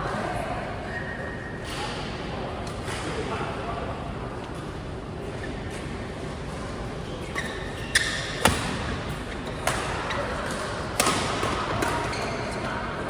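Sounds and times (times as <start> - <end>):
short high squeaks: 7.2 - 8.4.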